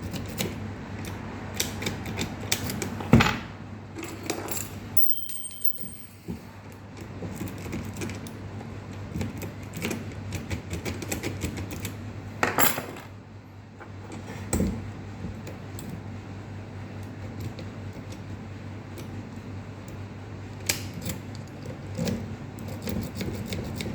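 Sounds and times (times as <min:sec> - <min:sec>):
key and tools clicking in lock: 0:00.0 - 0:03.0.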